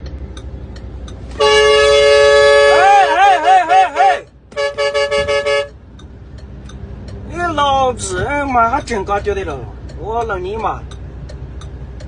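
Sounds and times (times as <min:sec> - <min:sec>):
two-note vehicle horn: 0:01.4 - 0:05.8.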